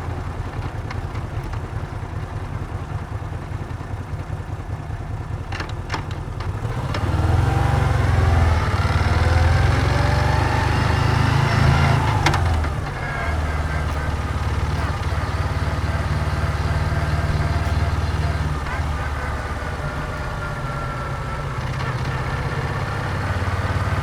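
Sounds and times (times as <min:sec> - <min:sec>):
motorcycle engine idling and pulling away: 0:00.0 - 0:24.0.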